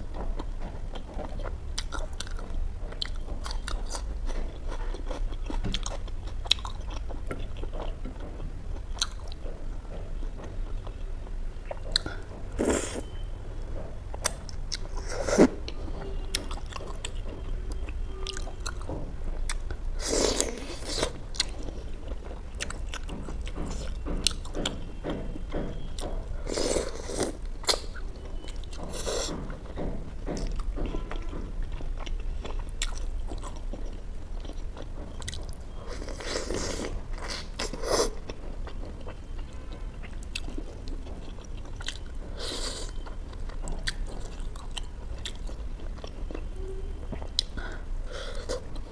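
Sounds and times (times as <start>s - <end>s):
low steady hum: 0.0s - 48.9s
chewing and biting: 0.2s - 9.5s, 16.3s - 24.8s, 25.9s - 29.7s, 30.3s - 46.5s.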